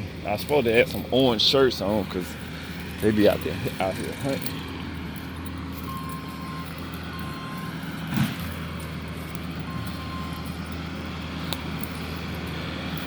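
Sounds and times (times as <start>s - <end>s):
engine running: 0.0s - 13.0s
short high beeps: 5.9s - 7.7s.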